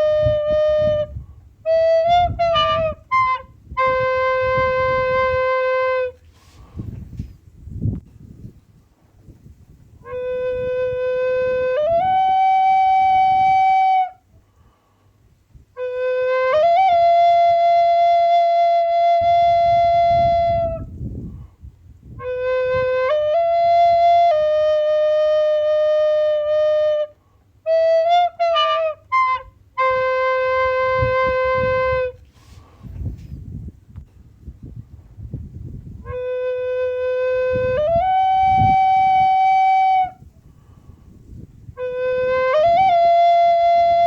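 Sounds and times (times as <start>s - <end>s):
solo flute melody: 0.0s - 6.8s, 10.0s - 14.2s, 15.7s - 21.3s, 22.1s - 32.6s, 35.9s - 40.7s, 41.7s - 44.0s.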